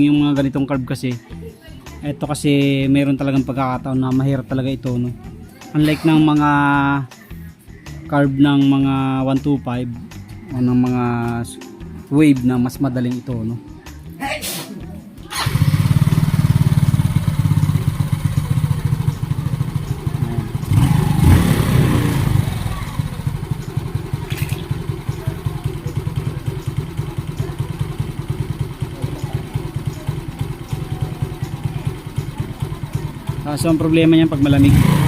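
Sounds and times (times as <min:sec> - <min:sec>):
motorcycle engine idling unevenly: 0:15.3 - 0:35.0.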